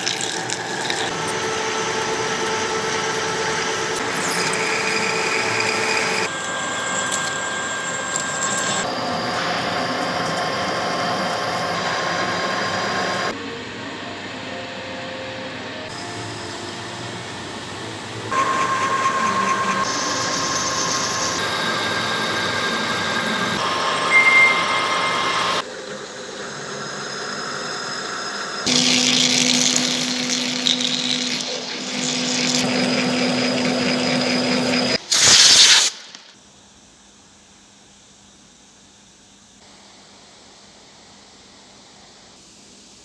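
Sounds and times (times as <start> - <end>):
machine tool cutting metal: 0.4 - 13.3, 28.7 - 35.0
short loud hiss: 35.0 - 36.4.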